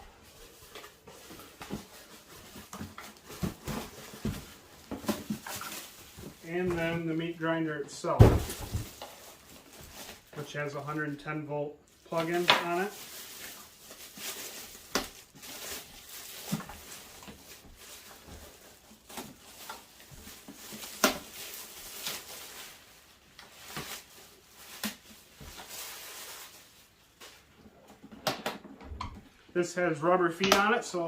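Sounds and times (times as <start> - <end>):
packaging rustling: 0.1 - 7.0, 8.3 - 10.4, 11.9 - 27.6.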